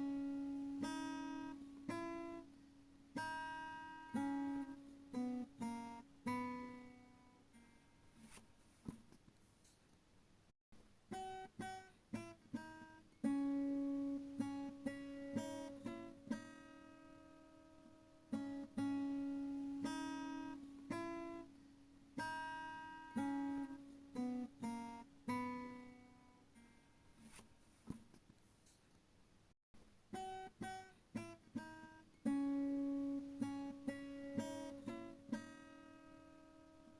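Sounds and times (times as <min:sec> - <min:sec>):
acoustic guitar picking: 0:00.0 - 0:08.4, 0:11.1 - 0:27.5, 0:30.1 - 0:36.9.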